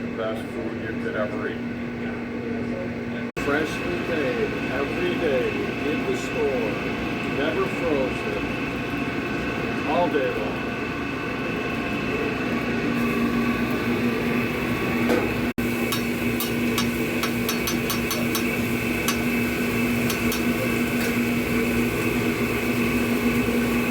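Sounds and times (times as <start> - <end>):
machine hum: 0.0 - 23.9
sharp taps and clicks: 15.9 - 18.5.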